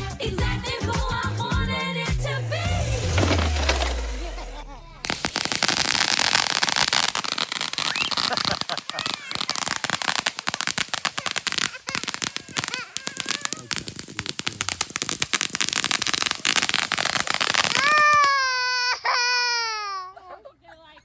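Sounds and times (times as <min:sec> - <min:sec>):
fireworks crackling: 0:01.2 - 0:18.9
young child wailing: 0:08.1 - 0:13.8, 0:17.6 - 0:20.3.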